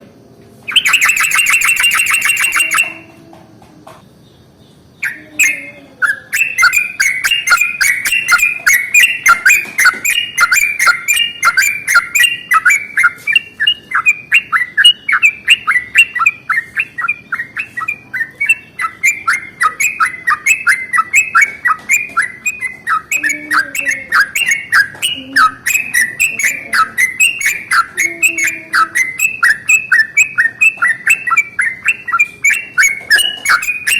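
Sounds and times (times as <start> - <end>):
loud buzzy bird call: 0.7 - 3.0
bulbul singing bubbly notes: 0.8 - 3.1, 5.0 - 33.9.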